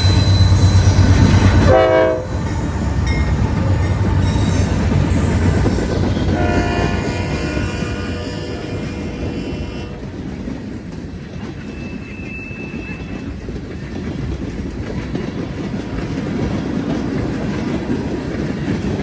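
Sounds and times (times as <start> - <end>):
freight train cars rumbling: 0.0 - 19.0
wheels clicking over rail joints: 9.3 - 19.0.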